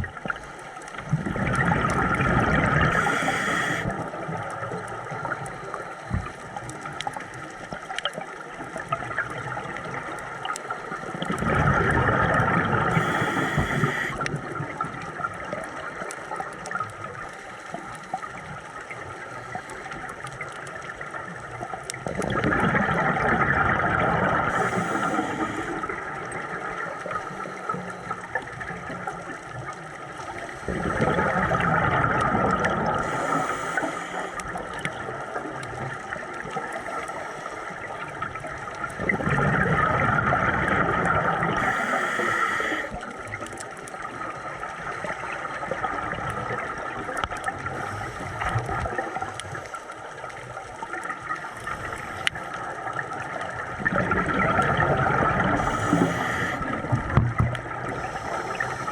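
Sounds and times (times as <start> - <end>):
exhaled bubbles gurgling: 0.0 - 58.9
regulator hiss: 2.9 - 4.0, 12.9 - 14.3, 24.5 - 26.0, 33.0 - 34.5, 41.6 - 43.0, 55.6 - 56.8, 57.9 - 58.9.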